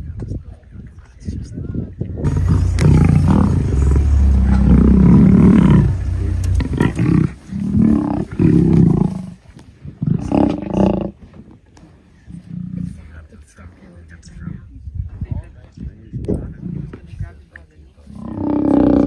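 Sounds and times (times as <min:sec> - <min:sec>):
lions growling and roaring: 0:02.3 - 0:09.4.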